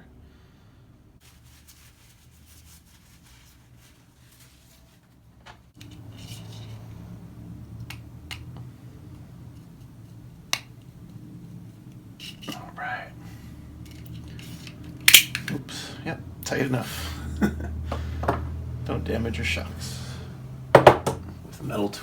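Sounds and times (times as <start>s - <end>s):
hands rubbing plastic: 1.2s - 6.8s.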